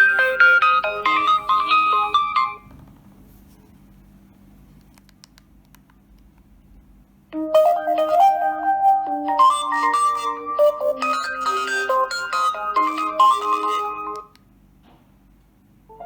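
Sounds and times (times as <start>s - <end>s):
phone ringtone melody: 0.0s - 2.6s, 7.4s - 14.2s.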